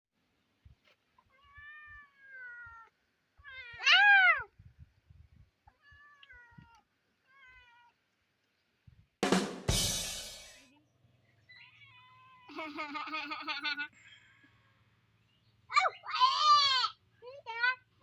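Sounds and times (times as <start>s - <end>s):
cat meowing: 1.3s - 4.5s, 5.7s - 8.0s.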